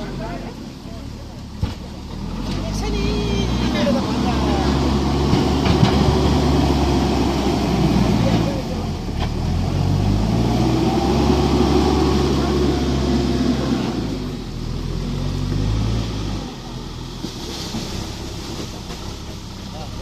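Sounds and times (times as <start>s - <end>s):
heavy machinery engine running: 0.0s - 20.0s.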